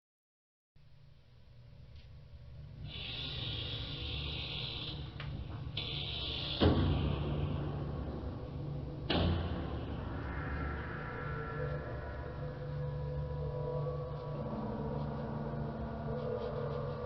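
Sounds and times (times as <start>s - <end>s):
low mechanical hum: 0.8s - 17.0s
hissing: 2.8s - 8.6s.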